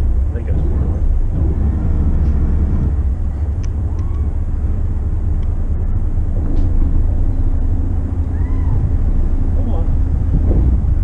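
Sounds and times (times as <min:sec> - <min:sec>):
boat engines rumbling: 0:00.0 - 0:11.0.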